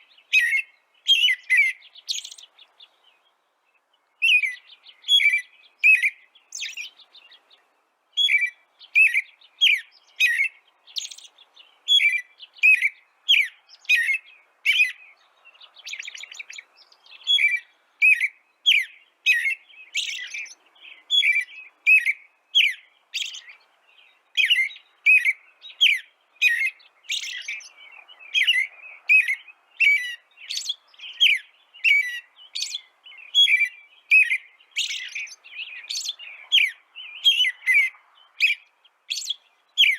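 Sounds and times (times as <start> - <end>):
small songbirds chirping: 0.0 - 39.9.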